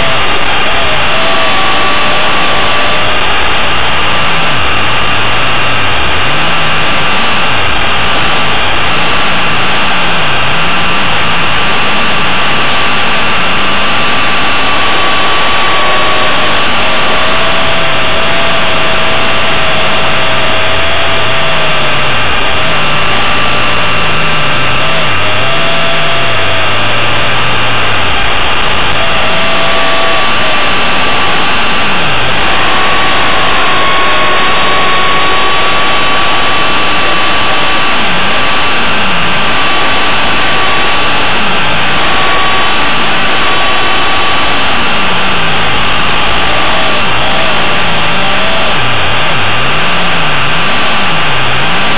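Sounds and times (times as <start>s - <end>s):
model helicopter motor whine: 0.0s - 50.1s.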